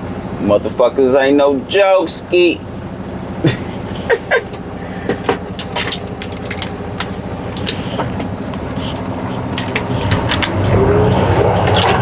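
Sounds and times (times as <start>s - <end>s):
diesel truck engine running: 0.0s - 12.0s
cab clicks and rattles: 3.4s - 12.0s.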